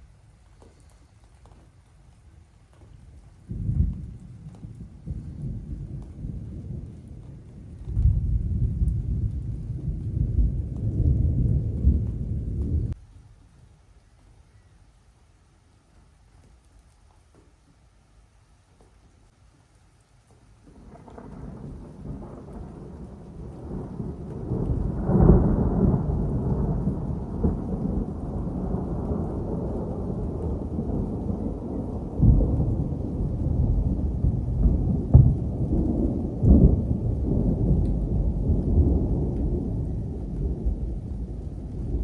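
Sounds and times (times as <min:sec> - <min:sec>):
thunder rumbling: 0:03.4 - 0:13.0, 0:20.6 - 0:42.0.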